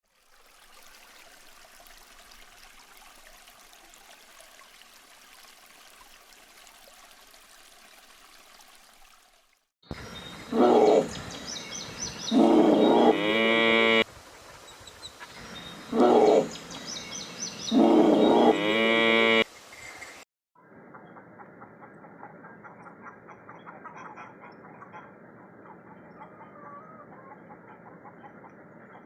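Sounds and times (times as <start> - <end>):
large mammal calling: 10.5 - 11.3, 12.2 - 14.0, 15.6 - 16.8, 17.6 - 19.4.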